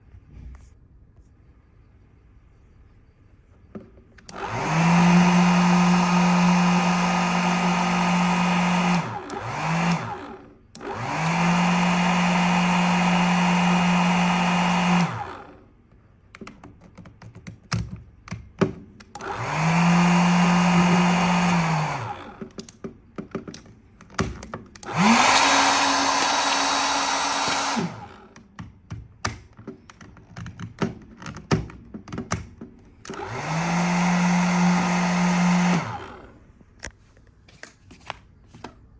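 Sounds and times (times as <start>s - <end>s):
hair dryer running: 4.3s - 15.6s, 19.2s - 22.4s, 24.8s - 28.4s, 33.1s - 36.4s.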